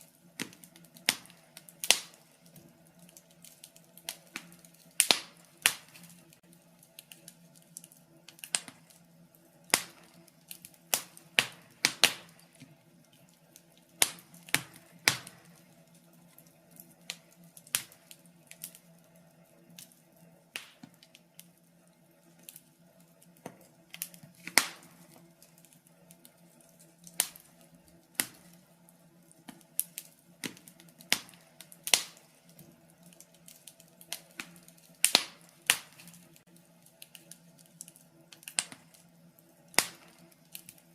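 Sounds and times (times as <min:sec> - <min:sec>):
faint steady hum: 0:00.0 - 0:40.9
wood fire crackling: 0:00.0 - 0:40.9.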